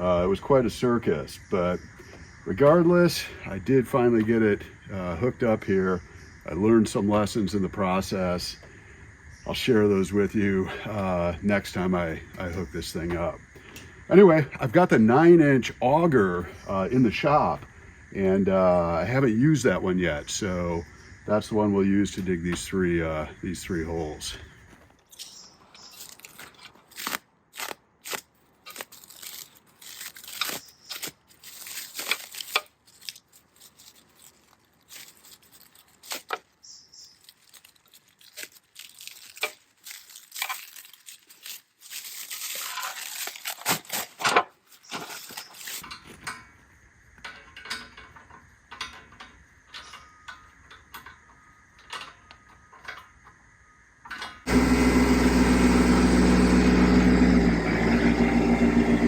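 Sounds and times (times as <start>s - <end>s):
metal parts clinking and scraping: 25.0s - 46.5s, 47.2s - 53.2s.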